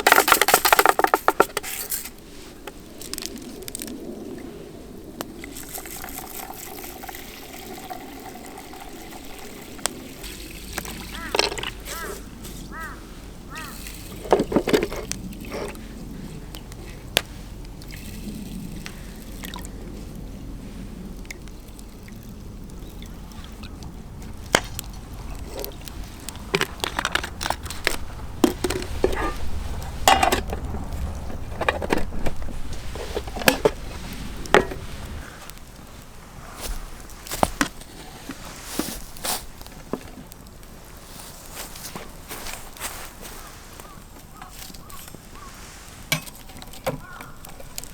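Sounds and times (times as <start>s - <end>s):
liquid pouring and sloshing: 5.4s - 12.5s, 13.7s - 20.1s, 21.2s - 35.3s
cooking gear clinking: 24.3s - 35.2s.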